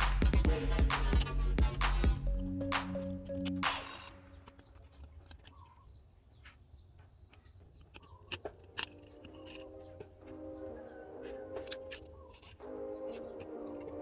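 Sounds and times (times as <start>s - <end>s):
background music: 0.0s - 4.6s, 8.7s - 14.0s
sharp clicks: 0.0s - 5.7s
faint bird chirping: 3.3s - 14.0s.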